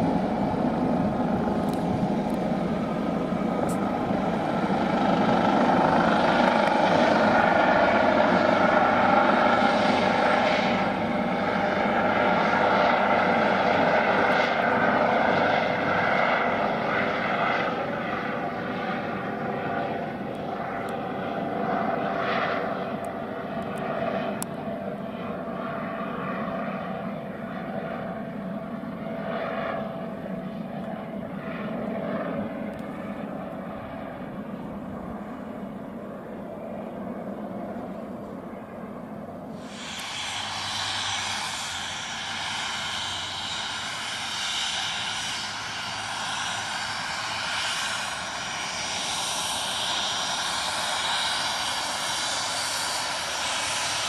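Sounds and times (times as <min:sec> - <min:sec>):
helicopter turbines and rotors whining: 0:00.0 - 0:54.0.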